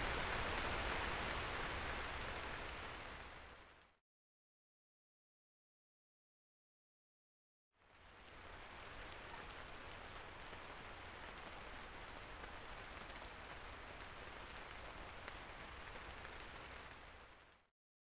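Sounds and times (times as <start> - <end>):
heavy rain falling: 0.0 - 3.9, 7.8 - 17.7.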